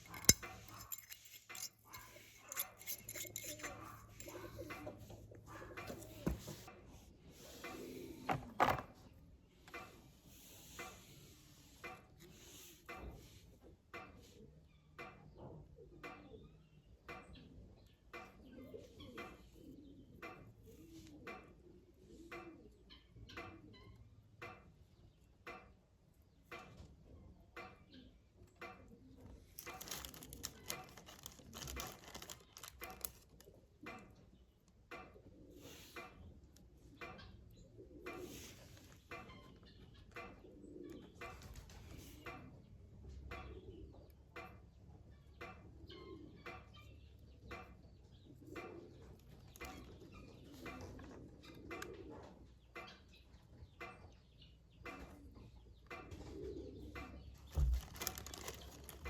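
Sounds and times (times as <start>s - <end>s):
clicking and rattling: 0.0s - 5.1s, 29.6s - 34.0s, 57.5s - 59.0s.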